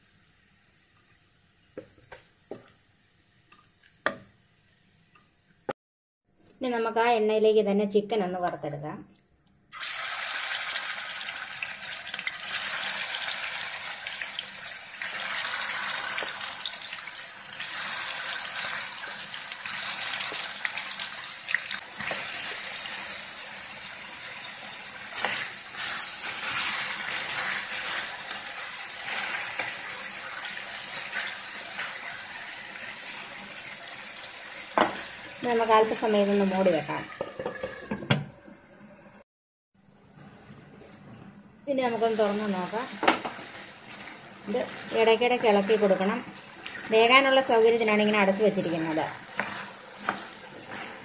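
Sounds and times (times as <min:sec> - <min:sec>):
chicken sizzling in hot oil: 0:09.7 - 0:38.0, 0:41.9 - 0:51.0.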